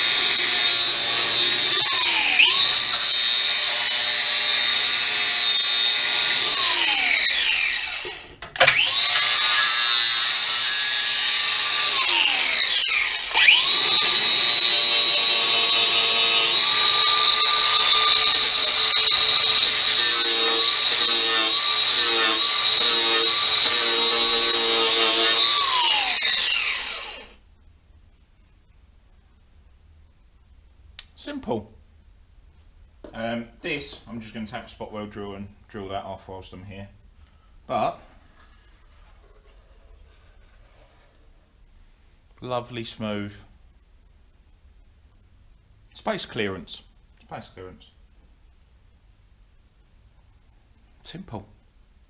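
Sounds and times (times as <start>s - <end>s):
power tool sanding steel: 8.8s - 27.3s.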